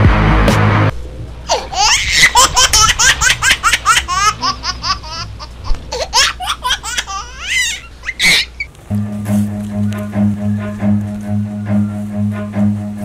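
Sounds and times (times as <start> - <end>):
rapid high-pitched vocal calls: 7.4 - 8.7.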